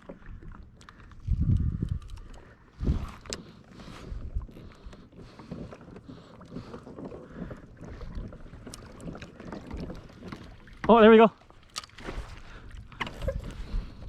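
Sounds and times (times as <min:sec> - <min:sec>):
water lapping against kayak hull: 0:00.0 - 0:14.0
knocks and bumps on hull: 0:04.7 - 0:11.2.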